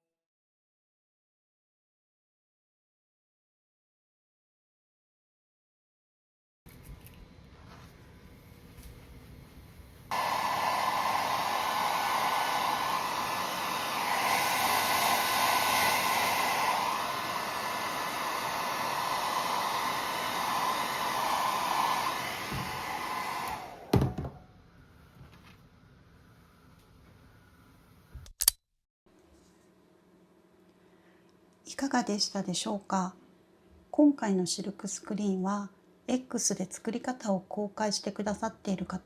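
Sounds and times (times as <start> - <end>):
hair dryer blowing: 10.1 - 24.4
thump: 23.9 - 24.4.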